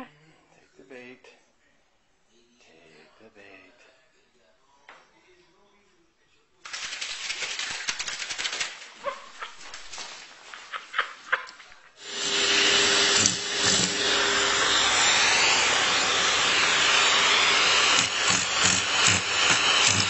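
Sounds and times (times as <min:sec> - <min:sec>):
motor appliance rushing noise: 0:12.0 - 0:20.0.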